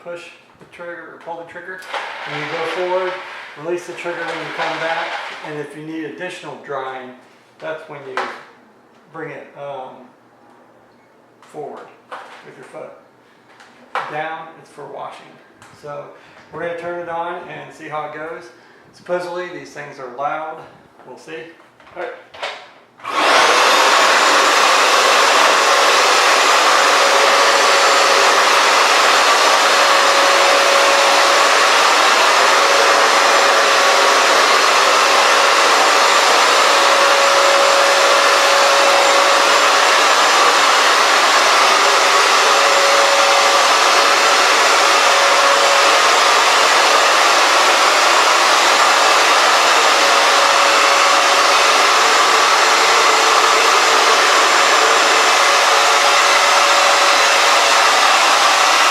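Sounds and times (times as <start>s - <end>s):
floor cleaner running: 1.8s - 5.6s, 23.0s - 58.9s.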